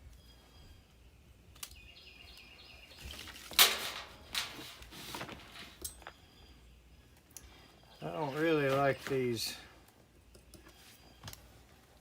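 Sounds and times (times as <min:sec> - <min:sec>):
scrape or rustle: 0:03.0 - 0:05.8.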